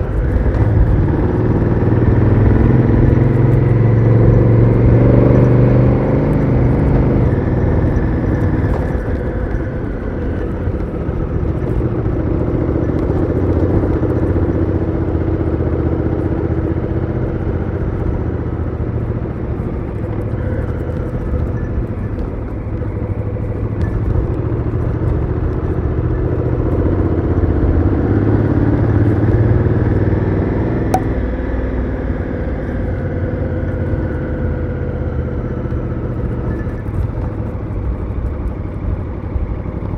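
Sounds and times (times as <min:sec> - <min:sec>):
motorcycle engine running: 0:00.0 - 0:31.2.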